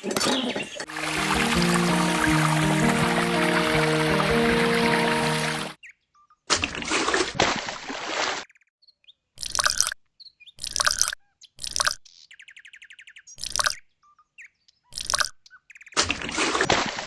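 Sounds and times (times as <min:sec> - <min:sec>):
small bird chirps: 0:08.5 - 0:16.0.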